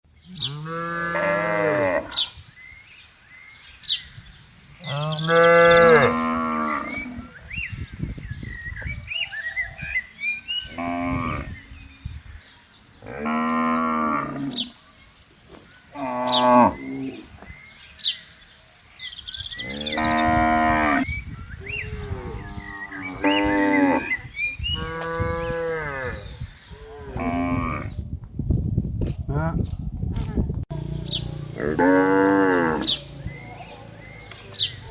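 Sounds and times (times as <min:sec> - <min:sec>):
cattle mooing: 0:19.6 - 0:21.1, 0:31.6 - 0:33.0.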